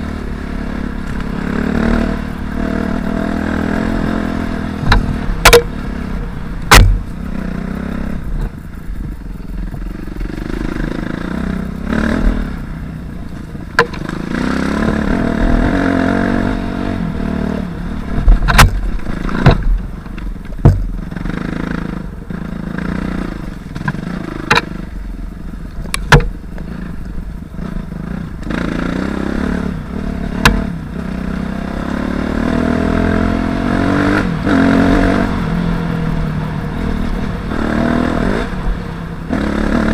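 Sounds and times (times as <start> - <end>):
dirt bike engine revving: 0.0 - 8.4, 9.5 - 19.7, 20.6 - 25.0, 26.0 - 39.9
sharp knocks and clatter: 4.8 - 5.7, 6.7 - 7.1, 13.7 - 14.2, 18.2 - 21.0, 23.7 - 24.8, 25.8 - 26.4.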